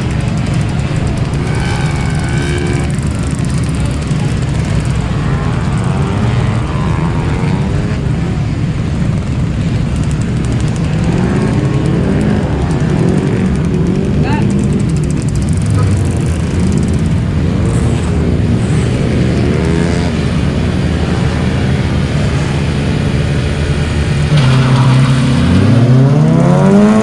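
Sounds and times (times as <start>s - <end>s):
car engines revving: 0.0s - 27.0s.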